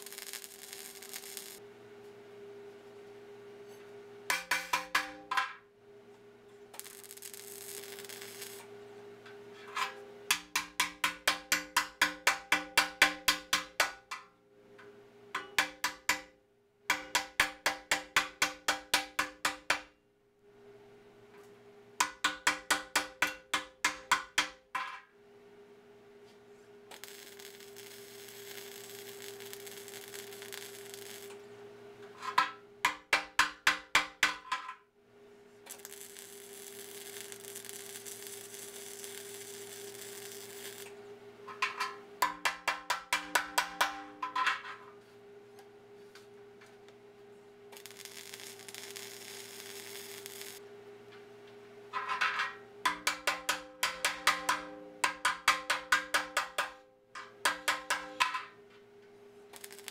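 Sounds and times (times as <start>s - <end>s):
welding arc hiss: 0.0s - 1.6s, 6.8s - 8.7s, 26.9s - 31.4s, 35.7s - 41.0s, 47.7s - 50.6s, 59.5s - 59.9s
sharp metallic tapping: 52.8s - 58.4s.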